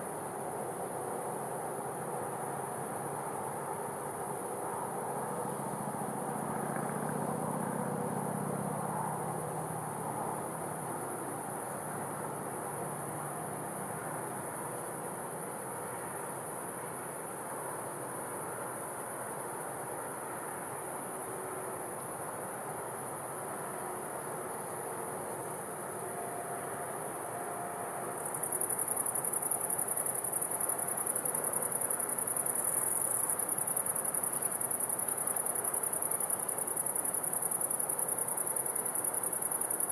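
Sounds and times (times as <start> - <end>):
faint background ambience: 0.0 - 39.9
crickets trilling: 21.2 - 39.9.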